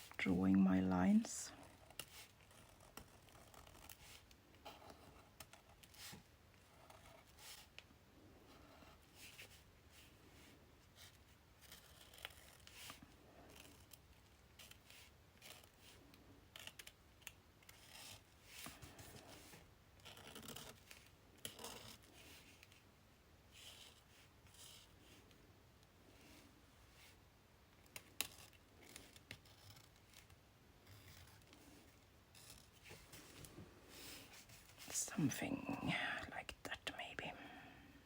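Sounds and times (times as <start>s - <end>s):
pen scratching on paper: 1.6s - 7.7s, 11.0s - 14.0s, 17.7s - 20.8s, 21.4s - 22.6s.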